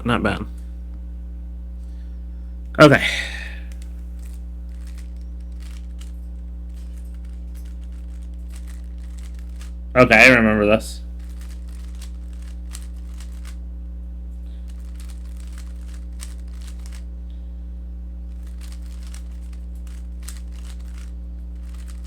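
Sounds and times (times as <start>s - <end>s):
steady electrical hum: 0.0s - 22.0s
plastic puzzle cube clicking: 3.7s - 6.1s, 6.7s - 9.7s, 11.2s - 13.6s, 14.7s - 17.0s, 18.4s - 22.0s.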